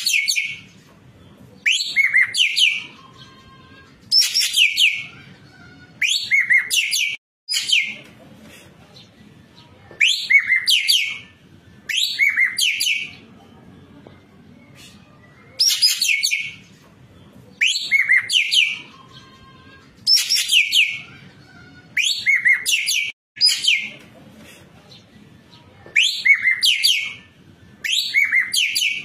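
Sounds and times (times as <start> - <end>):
bird singing rapid high notes: 26.0 - 29.0.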